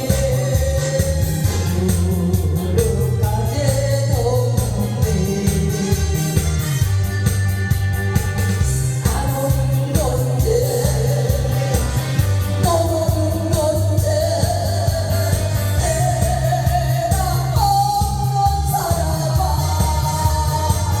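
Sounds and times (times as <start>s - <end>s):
backing track with bass beat: 0.0s - 21.0s
person singing long sliding notes: 9.1s - 21.0s.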